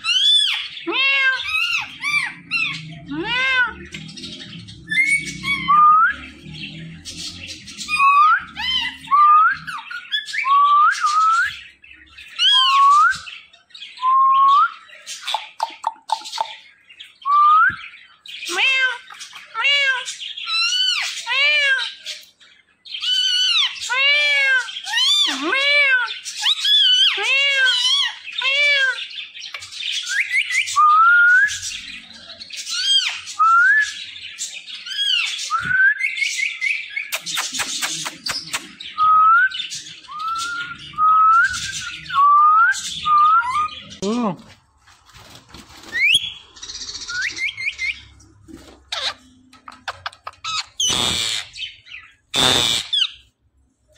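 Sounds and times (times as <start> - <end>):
parrot squawking: 0.0 - 11.6, 12.3 - 13.0, 18.4 - 22.2, 23.0 - 29.1, 32.6 - 33.4, 48.9 - 53.3
parrot whistling: 4.9 - 6.2.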